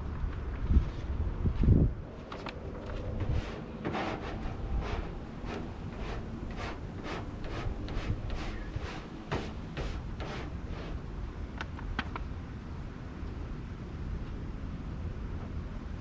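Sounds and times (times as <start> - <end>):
squeegee rubbing swipes on film: 2.9 - 11.1.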